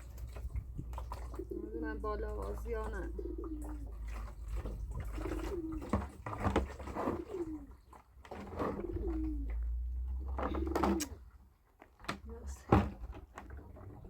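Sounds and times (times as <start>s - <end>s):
dove cooing: 1.3s - 7.8s, 8.5s - 11.2s.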